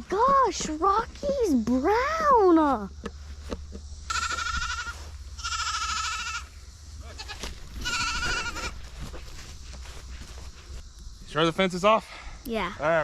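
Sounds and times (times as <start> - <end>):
goat bleating: 4.1 - 8.8.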